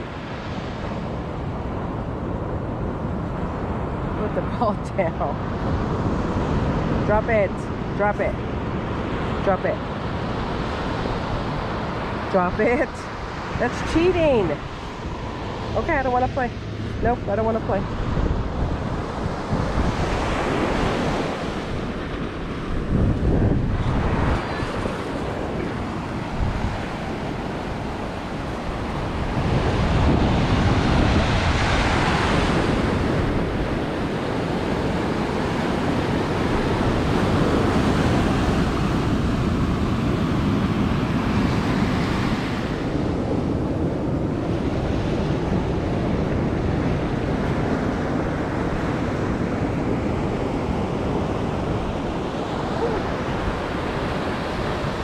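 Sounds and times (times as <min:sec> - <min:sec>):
ocean surf breaking: 0:00.0 - 0:55.0
wind buffeting microphone: 0:00.0 - 0:55.0.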